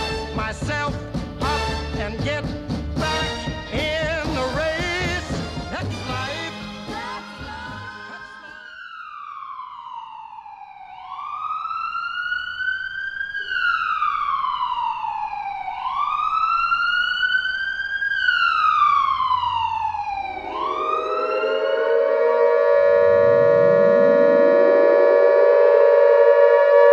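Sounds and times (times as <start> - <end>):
air-raid siren wailing: 7.8 - 26.9
lower siren winding up: 8.5 - 26.9.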